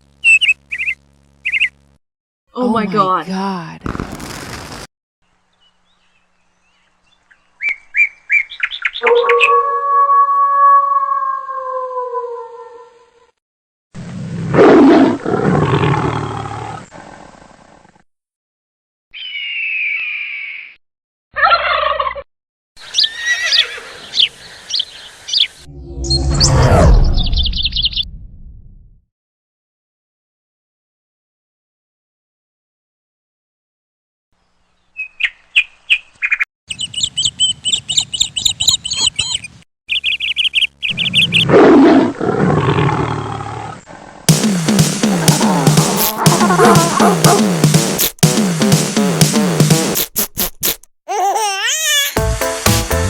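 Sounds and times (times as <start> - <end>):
bird calls: 5.7 - 9.7, 19.1 - 20.8, 22.8 - 25.6, 34.8 - 41.5
loud noisy sound: 44.3 - 50.2.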